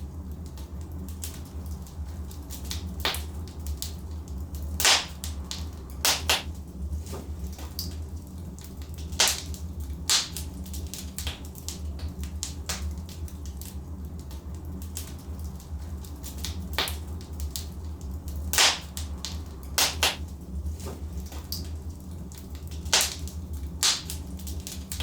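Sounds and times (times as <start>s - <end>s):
logs crackling in a fireplace: 0.0s - 25.0s
steady low rumble: 0.0s - 25.0s
sharp pops of burning logs: 2.5s - 4.0s, 4.8s - 8.0s, 8.7s - 13.7s, 16.2s - 21.7s, 22.6s - 25.0s.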